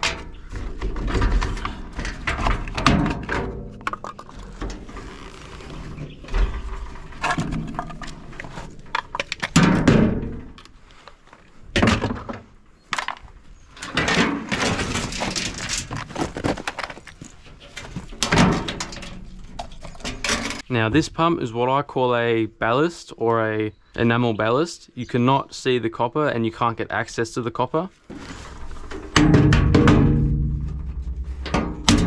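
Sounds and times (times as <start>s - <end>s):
hand tools knocking on metal and plastic: 0.0s - 4.8s.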